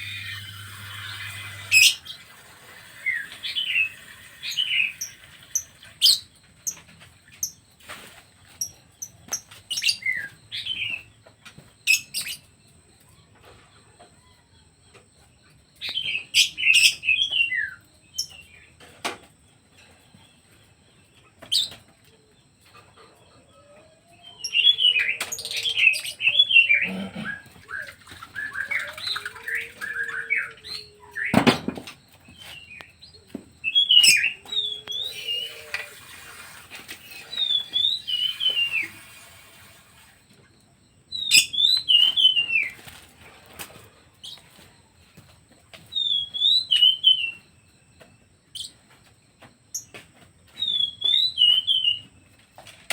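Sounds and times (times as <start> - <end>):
pet birds chirping: 20.0 - 36.0, 37.0 - 39.4, 41.1 - 43.1, 44.2 - 48.9.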